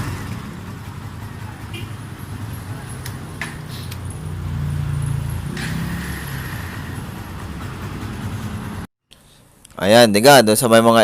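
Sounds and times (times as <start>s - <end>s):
motorcycle engine running: 0.0s - 8.9s.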